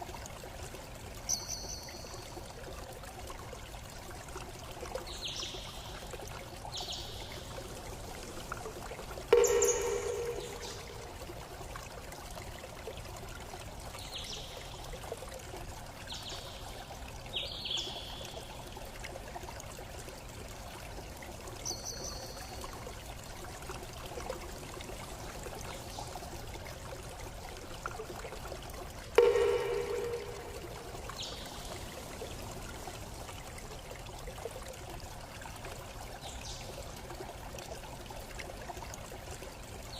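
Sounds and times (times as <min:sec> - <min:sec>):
water trickling: 0:00.0 - 0:39.9
high bird chirps: 0:09.3 - 0:11.0.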